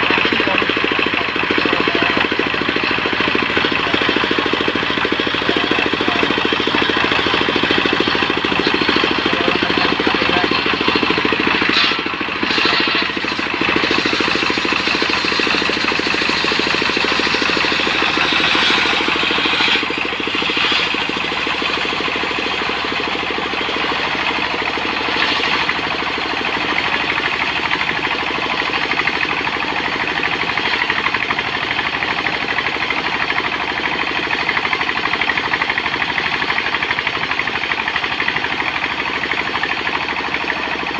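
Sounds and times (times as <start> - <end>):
sawmill engine running under load: 0.0 - 40.9
saw hissing and rasping: 11.6 - 21.1.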